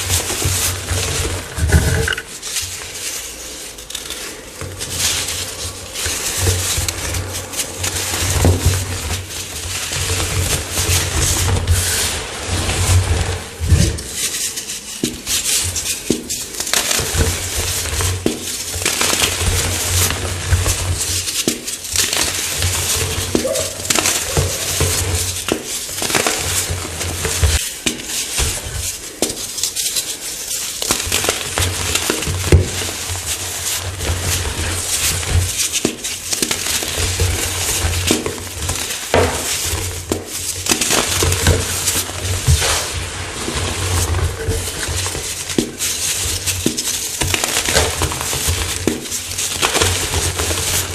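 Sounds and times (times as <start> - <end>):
chalk crunching and crumbling: 0.0 - 50.9.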